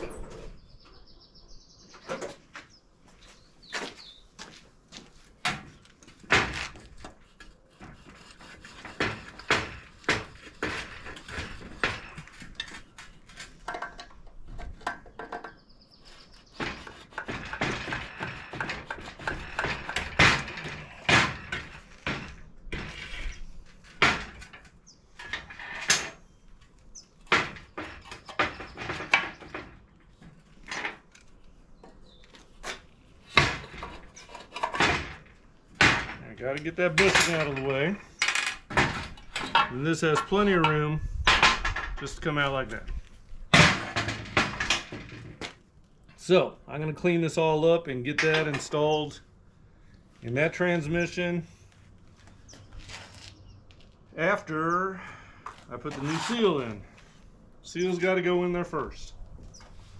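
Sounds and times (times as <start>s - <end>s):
metal tools clinking and knocking: 0.0s - 0.6s
metal scraping: 0.0s - 0.8s, 55.7s - 58.0s.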